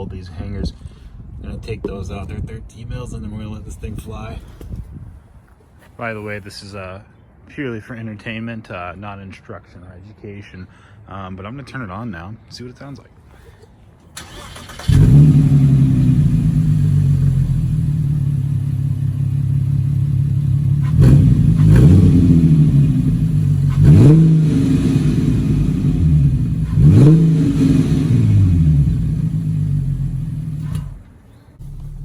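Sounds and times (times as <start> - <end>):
car engine idling and revving: 14.3 - 32.0.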